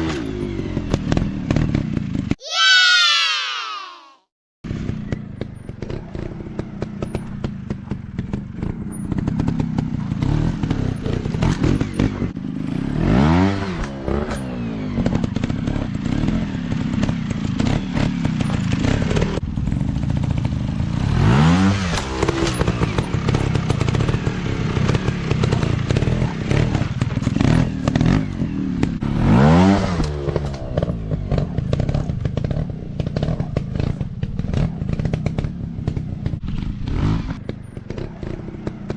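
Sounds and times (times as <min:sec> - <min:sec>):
dirt bike engine chugging and revving: 0:00.0 - 0:02.4, 0:04.7 - 0:38.9
clatter and thuds: 0:30.0 - 0:38.9.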